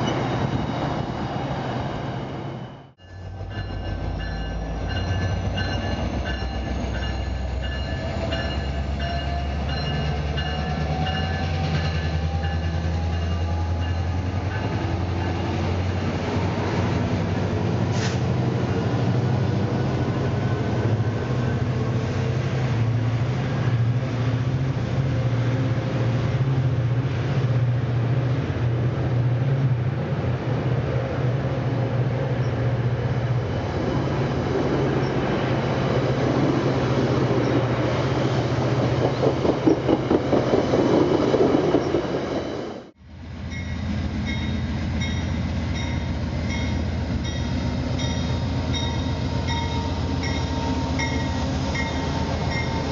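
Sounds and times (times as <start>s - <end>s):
train engine drone: 0.0s - 52.9s.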